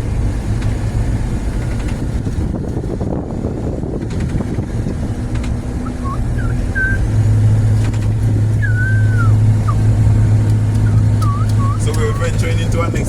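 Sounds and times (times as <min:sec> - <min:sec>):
car engine and road drone: 0:00.0 - 0:13.0
long falling whistle: 0:05.8 - 0:07.0, 0:08.6 - 0:09.4, 0:10.9 - 0:11.8
short chirping whistles: 0:05.8 - 0:07.0, 0:08.6 - 0:09.8, 0:10.8 - 0:12.3.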